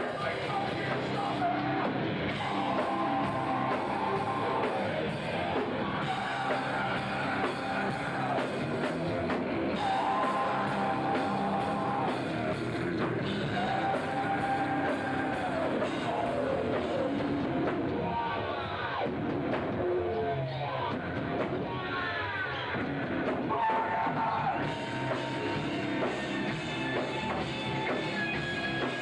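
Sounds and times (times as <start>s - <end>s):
person singing: 0.0s - 19.1s
hard rock band playing: 0.0s - 29.0s.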